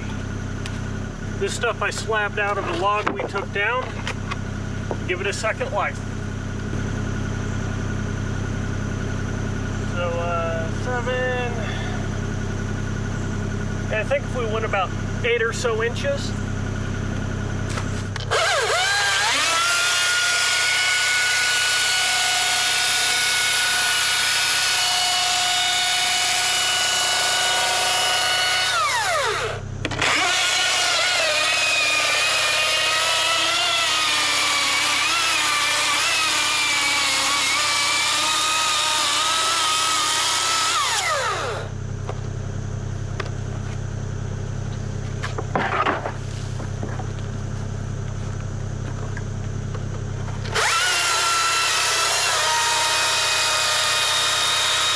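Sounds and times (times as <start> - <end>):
power tool working wood: 17.8 - 41.7, 50.5 - 54.9.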